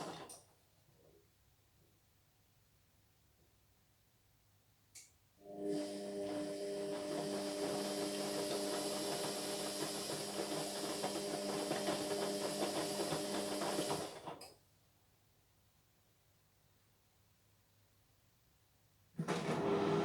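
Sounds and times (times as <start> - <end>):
washing machine running: 5.5 - 14.4, 19.2 - 20.0.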